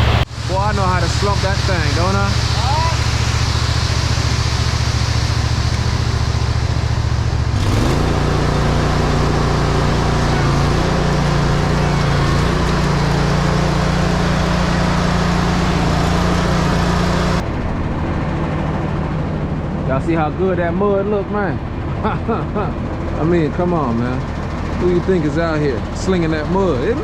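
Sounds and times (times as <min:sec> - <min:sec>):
diesel truck engine revving: 0:00.0 - 0:26.8.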